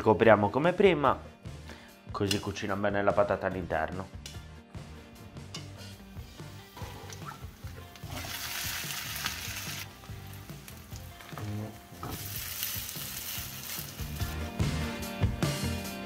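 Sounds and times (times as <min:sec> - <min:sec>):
faint background music: 0:00.0 - 0:16.0
potato frying in butter: 0:07.0 - 0:14.4.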